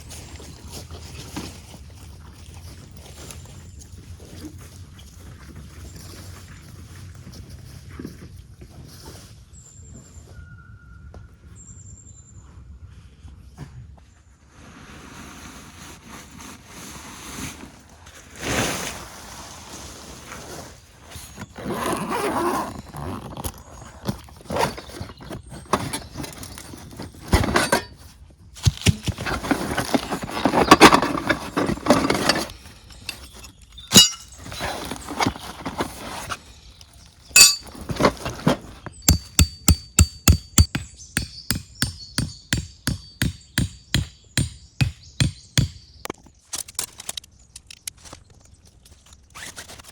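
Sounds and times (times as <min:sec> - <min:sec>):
gear rustling and clinking: 0:21.5 - 0:40.8
chopping or hammering strikes: 0:39.1 - 0:45.8.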